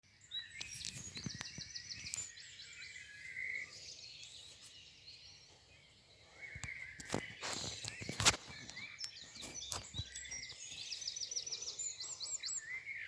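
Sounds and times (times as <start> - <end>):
songbird trill: 0.0 - 13.0.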